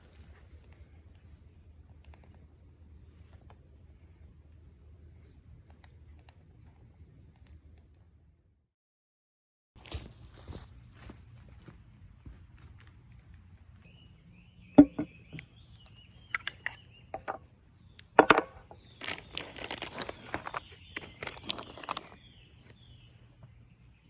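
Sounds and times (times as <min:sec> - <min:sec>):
wooden knocks: 0:14.8 - 0:15.1.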